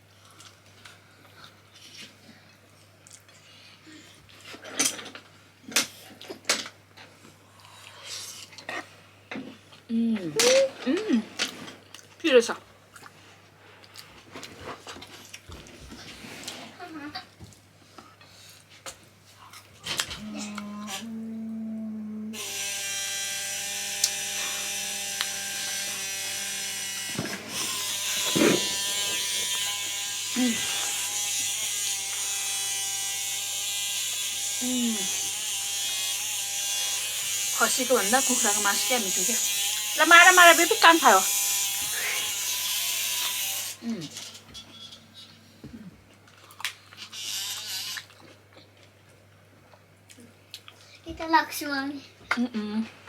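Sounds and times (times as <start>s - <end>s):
small electric motor whirring: 22.4s - 44.4s, 47.0s - 48.1s.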